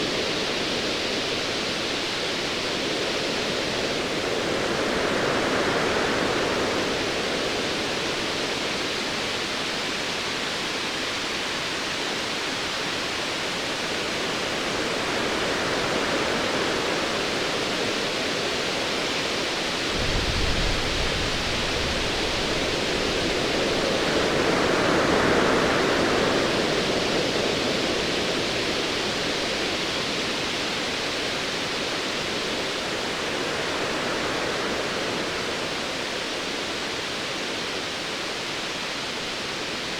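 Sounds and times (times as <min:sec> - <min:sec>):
distant thunder rumble: 0:19.9 - 0:23.4.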